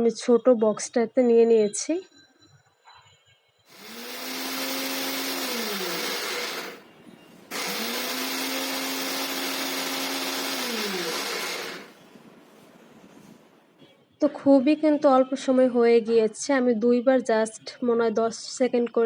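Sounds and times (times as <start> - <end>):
mixer grinder grinding seeds: 3.7 - 6.8, 7.5 - 12.0.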